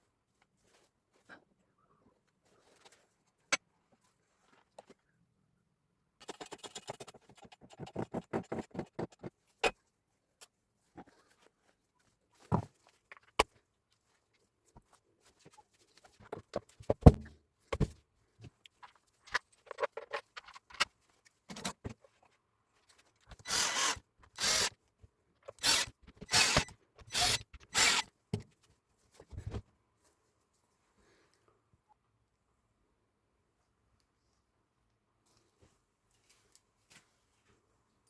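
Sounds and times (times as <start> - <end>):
power tool bursts: 23.5 - 24.7, 25.6 - 28.1.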